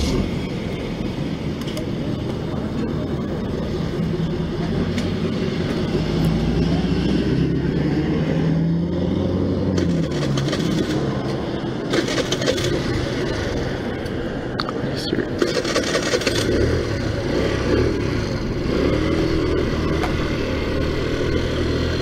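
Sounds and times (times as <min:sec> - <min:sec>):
scooter engine running: 0:09.7 - 0:14.3, 0:15.2 - 0:22.0.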